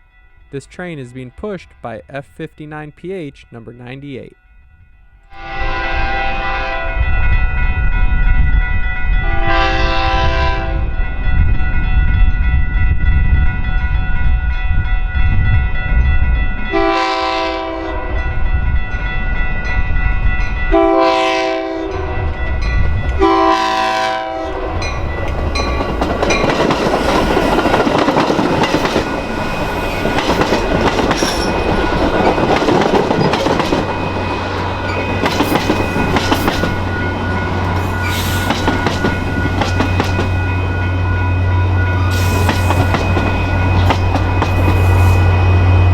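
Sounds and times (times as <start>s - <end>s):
train horn blasts: 5.3s - 8.2s, 9.2s - 11.7s, 16.7s - 18.4s, 20.7s - 22.4s, 23.1s - 25.0s
train rumble: 5.4s - 45.9s
wheel and rail clatter: 24.9s - 40.8s, 41.8s - 44.9s.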